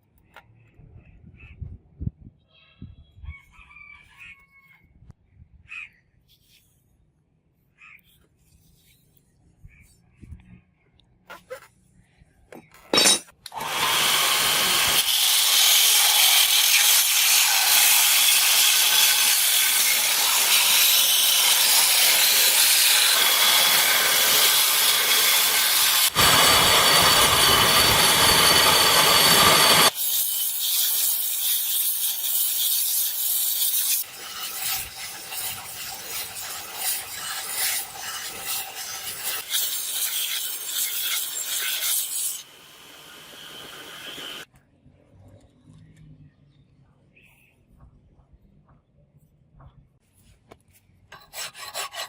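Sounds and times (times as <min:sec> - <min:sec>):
tool scraping iron: 0:12.6 - 0:42.6, 0:51.1 - 0:52.0.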